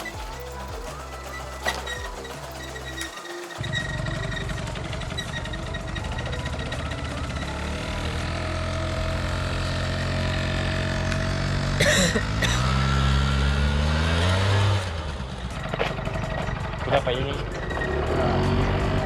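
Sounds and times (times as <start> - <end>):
short noisy bursts: 0.0 - 3.8
scooter engine running: 0.0 - 19.0.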